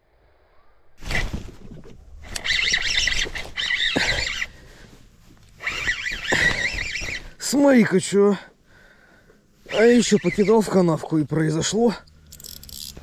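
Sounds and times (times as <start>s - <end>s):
low rumble of wind: 0.0s - 7.4s
birds chattering: 2.4s - 4.6s, 5.6s - 7.4s, 9.8s - 11.0s.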